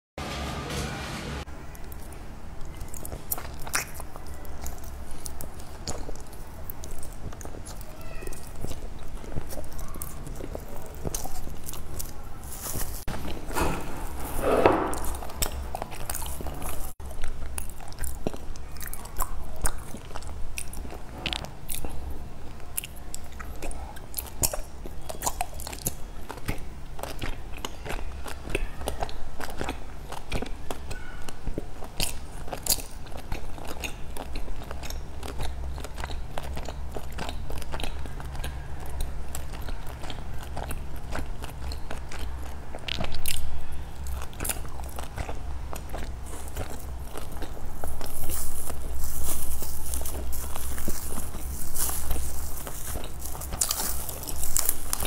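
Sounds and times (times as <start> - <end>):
low steady hum: 0.2 - 55.0
biting and chewing jelly cake: 1.5 - 55.0
plastic wrap rustling: 2.7 - 17.0, 46.0 - 55.0.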